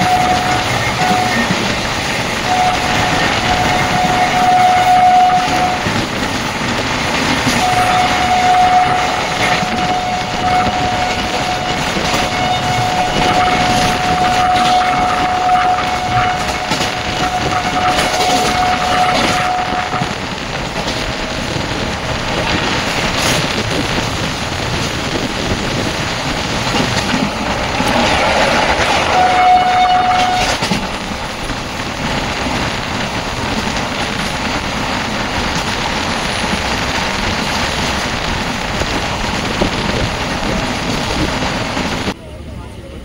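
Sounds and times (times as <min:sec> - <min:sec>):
train horn: 0:00.0 - 0:06.1, 0:07.3 - 0:20.5, 0:27.5 - 0:30.8
train wheel and track noise: 0:00.0 - 0:43.0.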